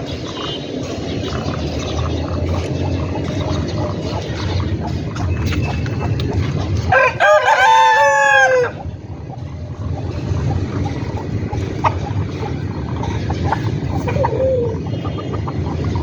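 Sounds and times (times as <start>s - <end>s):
rooster crowing: 6.9s - 8.8s.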